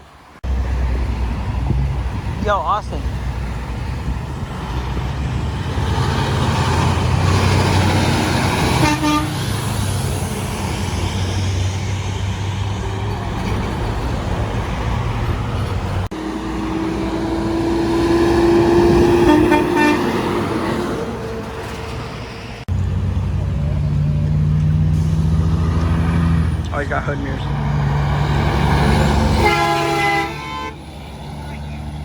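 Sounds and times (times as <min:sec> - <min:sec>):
trucks passing on highway: 0:00.0 - 0:32.0
truck horn: 0:08.4 - 0:09.8, 0:16.2 - 0:21.1, 0:28.8 - 0:30.9.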